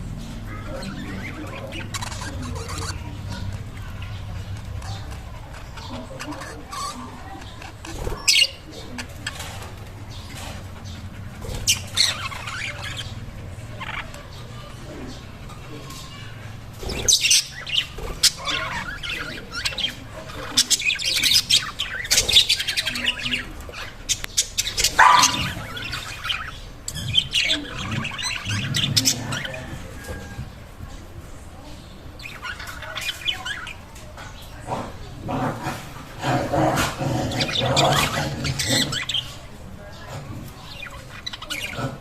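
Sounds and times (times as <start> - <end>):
budgerigars chirping and warbling: 0.0 - 42.0
sharp bird clicks: 24.2 - 25.5.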